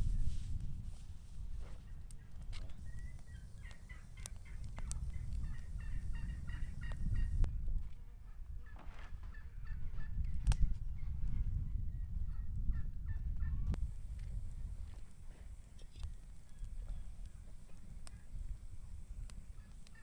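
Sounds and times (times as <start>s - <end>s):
steady low rumble: 0.0s - 1.2s, 2.8s - 7.6s
poultry burbling calls: 2.8s - 7.5s.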